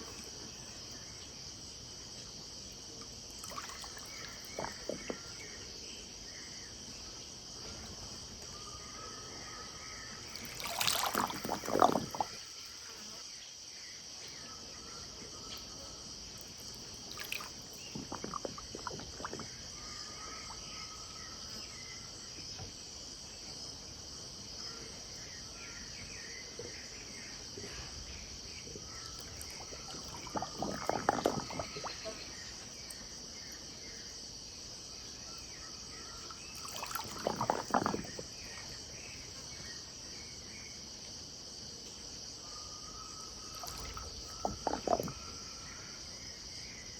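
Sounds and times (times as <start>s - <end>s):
high-pitched insect chorus: 0.0s - 46.9s
river water splashing: 3.4s - 5.1s, 10.3s - 13.2s, 16.6s - 20.6s, 29.1s - 32.3s, 36.3s - 38.6s, 43.5s - 45.2s.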